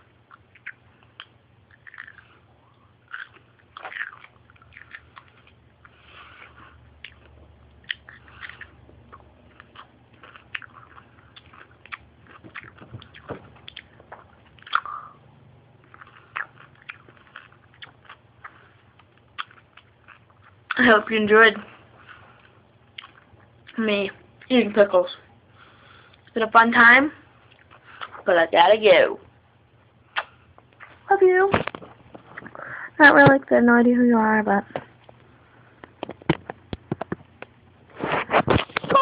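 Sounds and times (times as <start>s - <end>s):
person crunching pickles: 0.2s - 15.2s, 15.8s - 20.8s
mouth clicks: 14.6s - 15.2s, 30.1s - 30.9s.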